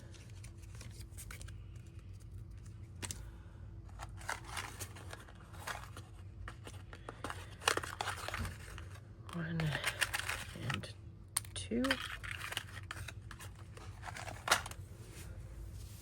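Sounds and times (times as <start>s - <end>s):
paper rustling: 3.9s - 10.9s, 11.8s - 16.0s.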